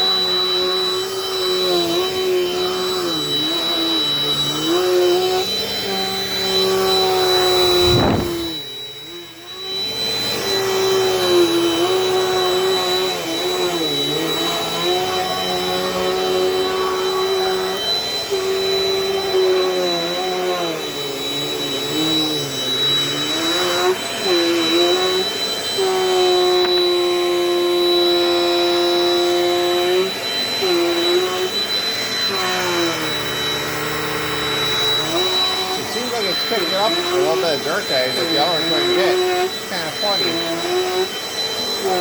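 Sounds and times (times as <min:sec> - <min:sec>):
upright vacuum cleaner running: 0:00.0 - 0:42.0.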